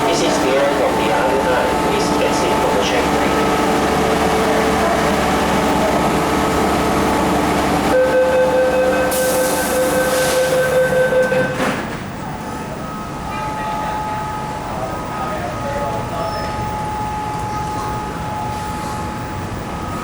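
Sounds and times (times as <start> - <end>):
train running noise: 0.0 - 20.0
hiss: 9.1 - 10.6.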